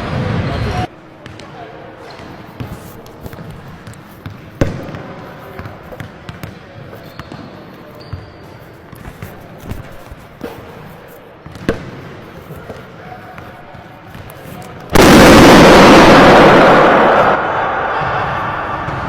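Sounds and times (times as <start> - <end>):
basketball bouncing on hard court: 3.3 - 6.6, 11.4 - 12.2.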